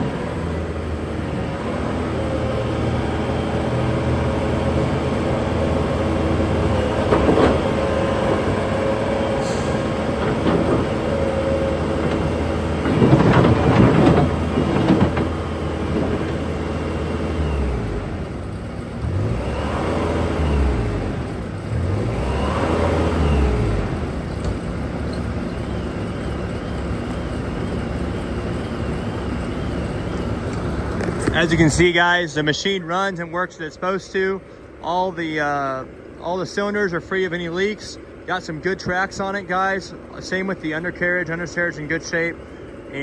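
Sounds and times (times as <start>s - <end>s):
diesel engine running: 0.0s - 43.0s
clanking and scraping: 7.0s - 8.0s, 9.4s - 11.3s, 11.9s - 16.5s.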